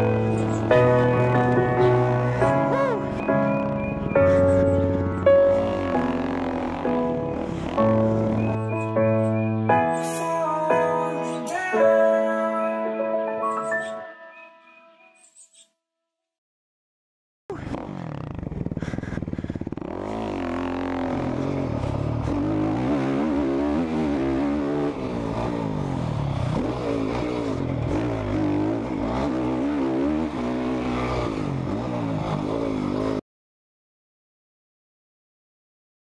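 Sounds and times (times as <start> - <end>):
dirt bike engine revving: 0.0 - 9.5, 17.5 - 33.2.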